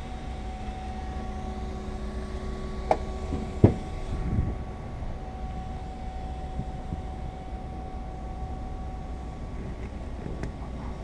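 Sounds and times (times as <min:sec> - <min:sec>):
steady mechanical hum: 0:00.0 - 0:11.0
sharp knocks: 0:02.9 - 0:03.8.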